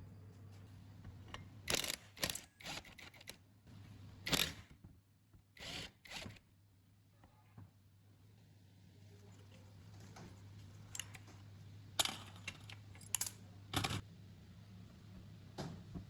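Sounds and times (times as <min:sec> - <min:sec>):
tools clicking and scraping: 0:01.3 - 0:03.4, 0:12.0 - 0:14.0.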